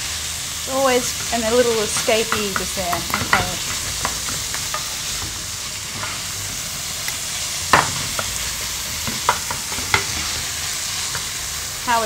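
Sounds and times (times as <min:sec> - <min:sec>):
meat sizzling in oil: 0:00.0 - 0:12.0
spatula clacking against pan: 0:01.2 - 0:05.4, 0:09.0 - 0:10.2.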